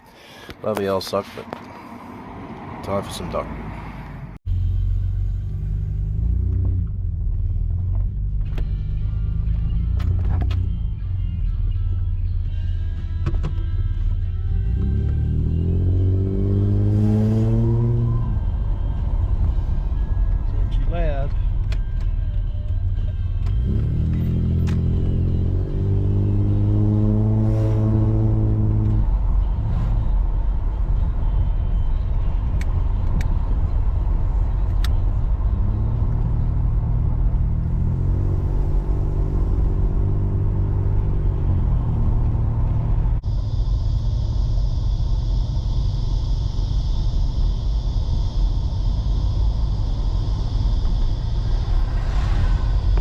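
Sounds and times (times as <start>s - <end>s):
car engine with sports exhaust: 1.4s - 53.0s
high-pitched whine: 14.5s - 53.0s.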